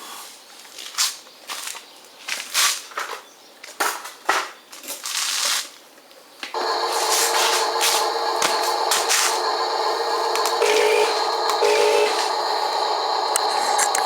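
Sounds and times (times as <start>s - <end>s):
buzzing hum with fixed tones: 6.6s - 14.0s.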